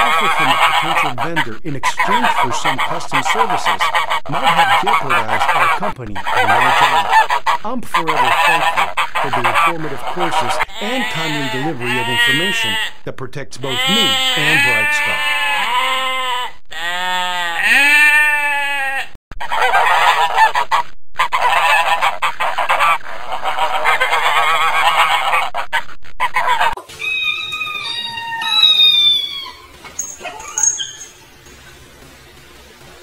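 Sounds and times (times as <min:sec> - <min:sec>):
chorus of animals calling: 0:00.0 - 0:13.0, 0:13.6 - 0:32.0
sheep bleating: 0:10.3 - 0:13.0, 0:13.6 - 0:19.2.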